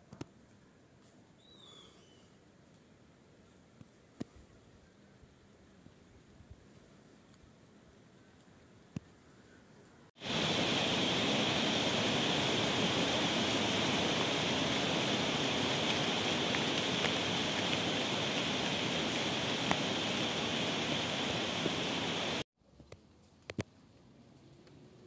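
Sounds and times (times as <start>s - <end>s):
heavy rain pouring: 10.2s - 22.4s
ticks of raindrops: 10.2s - 23.8s.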